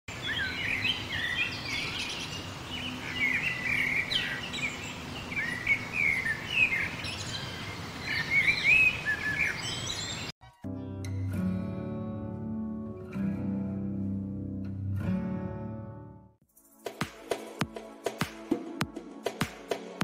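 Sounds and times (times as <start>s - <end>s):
birds chirping and twittering: 0.1s - 10.4s.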